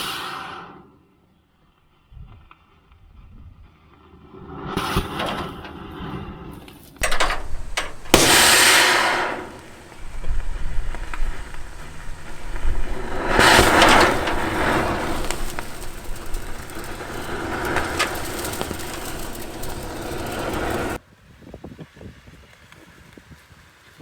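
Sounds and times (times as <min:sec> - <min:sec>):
thermite burning with rushing hiss: 0:07.0 - 0:21.0.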